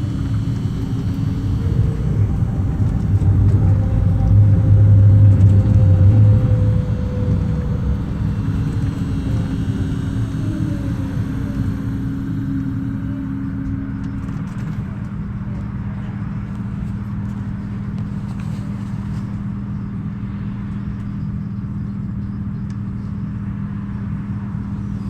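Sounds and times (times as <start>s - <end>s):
higher electrical tone: 0.0s - 17.2s
tram electrical hum: 0.0s - 25.0s.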